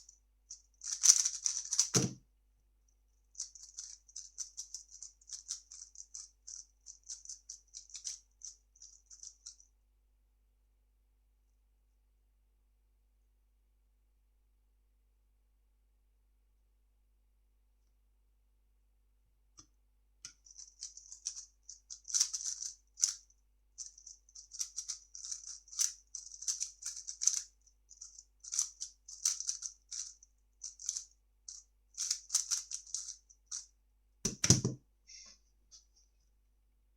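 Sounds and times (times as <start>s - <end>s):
plastic puzzle cube clicking: 0.8s - 2.1s, 32.0s - 33.1s.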